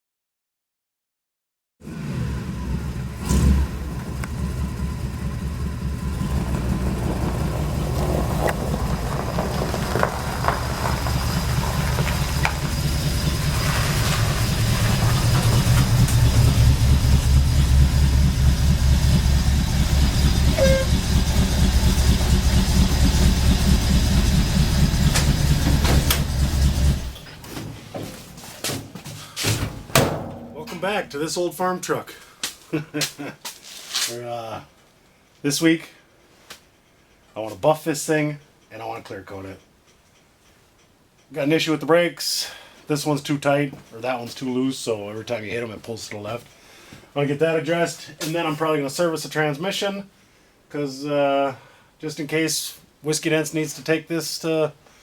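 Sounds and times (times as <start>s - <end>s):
truck engine running roughly: 2.6s - 27.3s
sharp knock: 29.6s - 30.8s.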